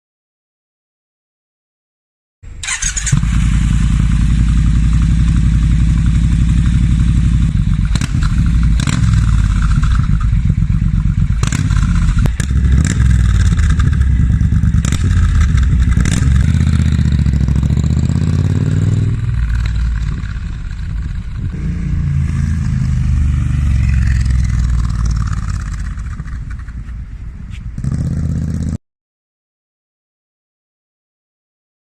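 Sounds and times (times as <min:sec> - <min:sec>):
motorcycle engine running loud: 0:03.0 - 0:27.2, 0:27.8 - 0:28.8
exhaust cracks: 0:07.6 - 0:27.9.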